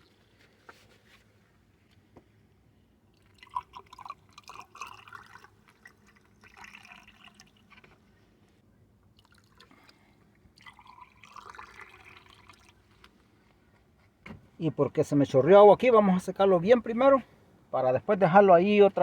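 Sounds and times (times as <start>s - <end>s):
water trickling and splashing: 3.1s - 8.1s, 9.1s - 13.0s.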